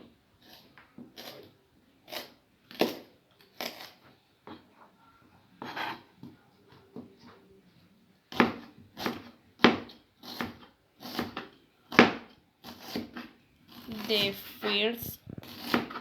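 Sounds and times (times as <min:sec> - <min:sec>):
knife cutting on cutting board: 0:05.6 - 0:06.1, 0:08.4 - 0:14.7, 0:15.4 - 0:16.0.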